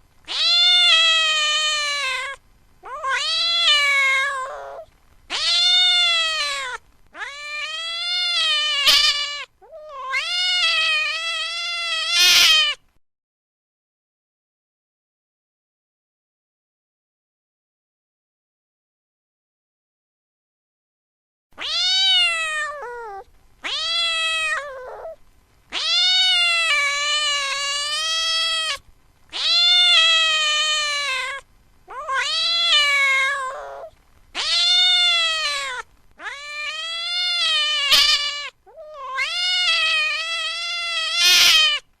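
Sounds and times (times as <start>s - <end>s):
cat meowing: 0.3s - 12.8s, 21.6s - 41.9s.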